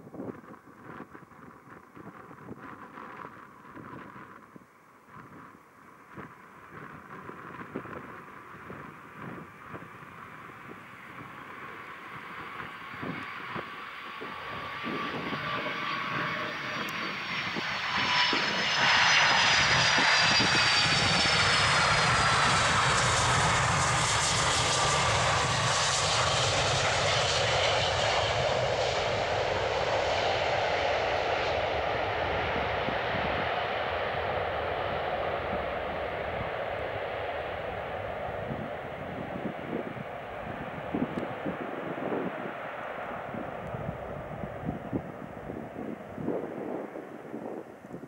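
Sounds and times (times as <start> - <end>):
jet airliner passing: 6.2 - 48.0.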